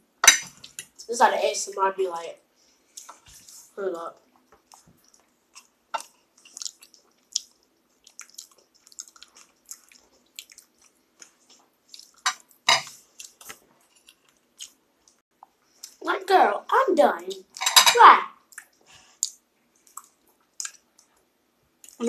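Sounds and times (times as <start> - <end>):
person chewing food: 4.4 - 16.0, 18.5 - 22.0.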